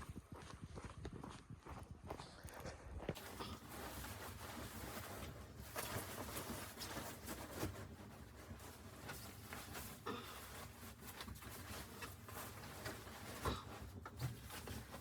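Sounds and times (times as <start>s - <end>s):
faint rustling: 3.1s - 15.0s.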